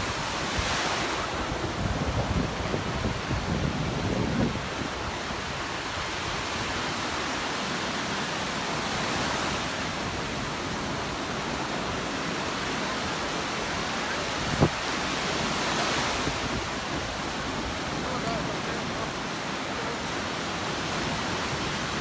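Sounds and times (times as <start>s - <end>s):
surf washing onto beach: 0.0s - 22.0s.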